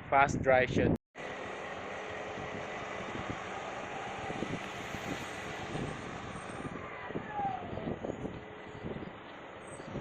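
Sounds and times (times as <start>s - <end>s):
strong wind buffeting microphone: 2.2s - 10.0s.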